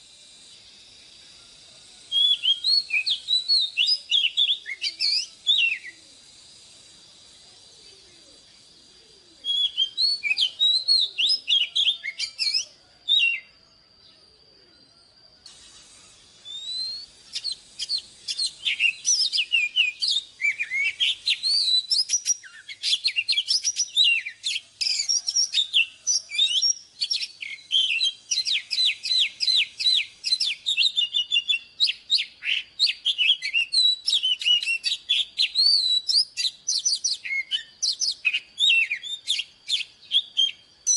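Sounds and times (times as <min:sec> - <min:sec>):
bird singing whistled notes: 0:00.0 - 0:40.9.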